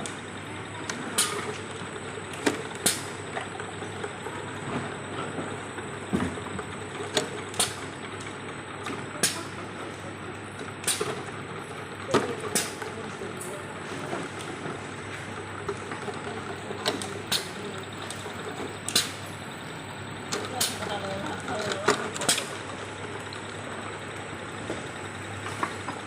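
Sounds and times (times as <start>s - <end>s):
machine humming: 12.3s - 26.0s
sharp machine clicks: 18.9s - 19.3s, 21.7s - 22.6s.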